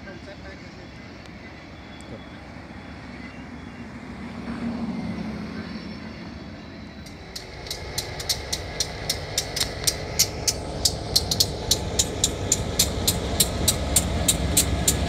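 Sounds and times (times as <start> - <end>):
train low rumble: 0.0 - 15.0
sharp evenly spaced clicks: 7.0 - 15.0.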